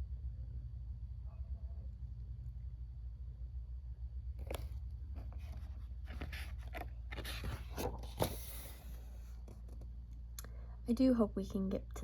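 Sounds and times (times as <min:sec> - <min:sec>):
steady low hum: 0:00.0 - 0:12.0
book pages rustling and turning: 0:04.4 - 0:09.9.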